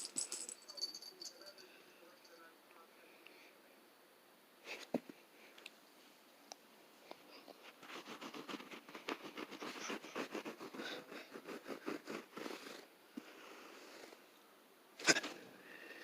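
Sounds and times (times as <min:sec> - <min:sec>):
kitten scratching: 0:07.6 - 0:12.9.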